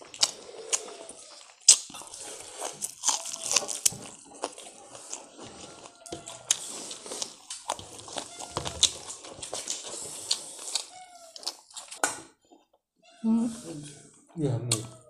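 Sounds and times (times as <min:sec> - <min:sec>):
wet chewing and lip-smacking: 0:00.0 - 0:12.1.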